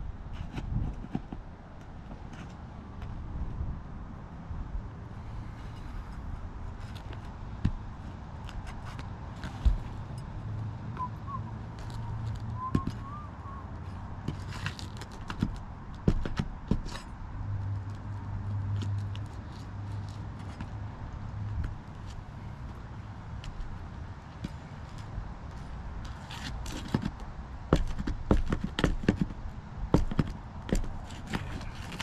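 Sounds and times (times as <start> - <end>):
roof tool prying at nails: 14.6 - 17.0.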